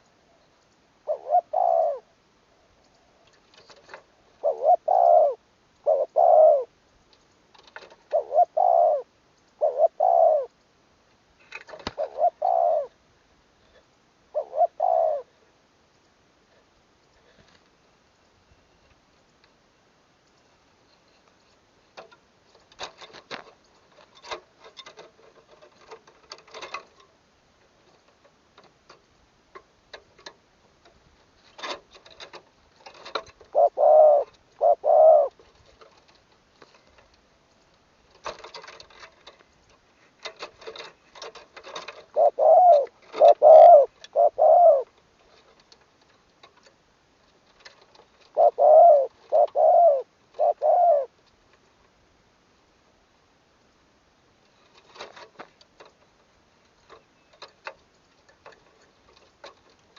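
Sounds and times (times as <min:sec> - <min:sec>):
dove cooing: 0:01.0 - 0:06.8, 0:07.9 - 0:10.6, 0:11.7 - 0:13.0, 0:13.7 - 0:15.4, 0:32.2 - 0:35.9, 0:40.6 - 0:45.0, 0:48.2 - 0:51.2.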